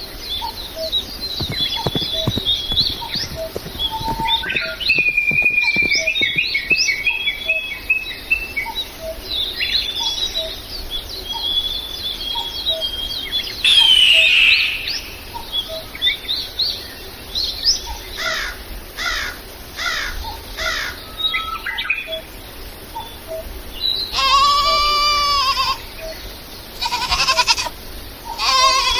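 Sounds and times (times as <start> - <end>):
small birds chirping: 0.8 - 7.1
high bleating: 24.2 - 25.8, 26.8 - 27.7, 28.4 - 28.9.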